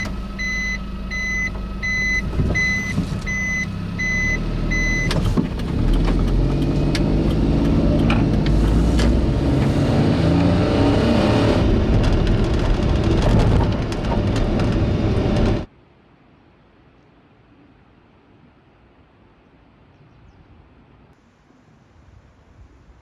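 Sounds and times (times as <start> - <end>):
car engine and road rumble: 0.0 - 15.7
clicks and knocks: 5.0 - 9.2.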